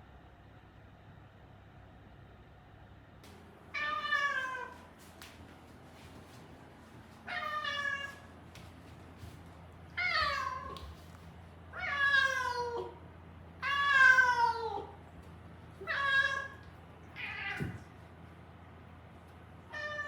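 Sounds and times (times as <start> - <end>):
cat meowing: 3.8 - 4.8, 7.3 - 8.3, 11.8 - 13.0, 13.6 - 15.0, 15.8 - 17.9, 19.7 - 20.0.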